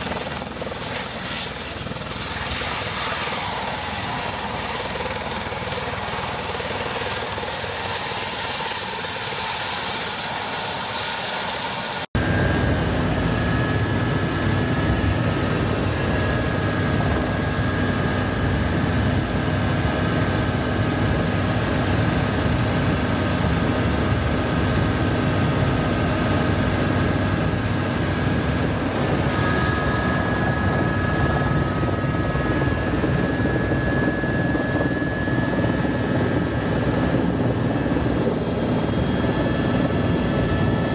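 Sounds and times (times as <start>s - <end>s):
helicopter rotor and engine: 0.0s - 40.9s
high whine: 28.8s - 40.0s.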